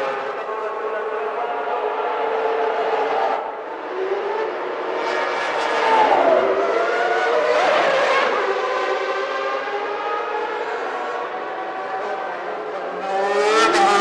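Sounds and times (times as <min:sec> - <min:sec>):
race car engines at high revs: 0:00.0 - 0:14.0
race car passing close: 0:02.4 - 0:12.0, 0:13.0 - 0:14.0.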